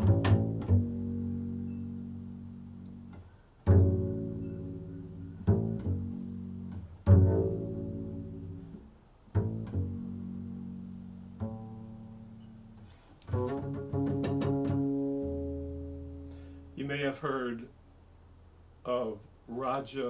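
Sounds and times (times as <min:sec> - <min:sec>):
plucked string instrument: 0:00.0 - 0:16.9.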